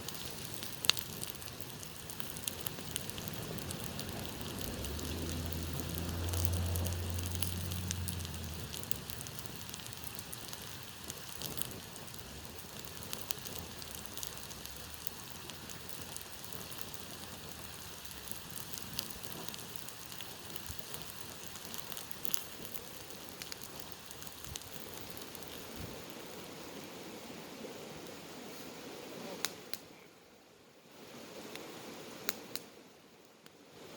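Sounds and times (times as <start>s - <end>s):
campfire crackling: 0.0s - 30.1s, 30.9s - 33.7s
low rumble: 2.0s - 10.6s.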